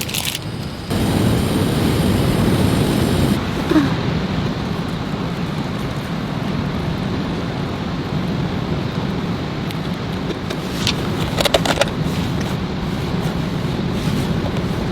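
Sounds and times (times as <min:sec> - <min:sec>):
heavy rain: 0:00.7 - 0:09.5
wind rushing: 0:00.8 - 0:04.3.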